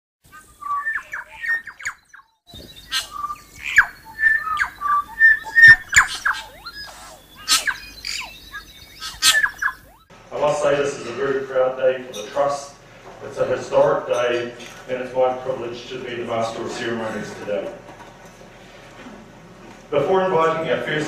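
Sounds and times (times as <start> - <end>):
birds singing and calling: 0.3 - 10.1.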